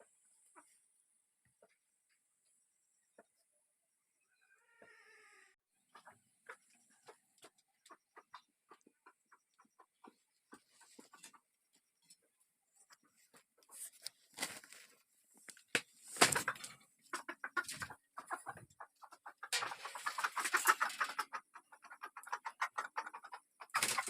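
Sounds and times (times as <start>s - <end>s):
chickens clucking: 0.0s - 0.8s, 1.4s - 3.5s, 5.7s - 15.0s, 15.8s - 24.0s.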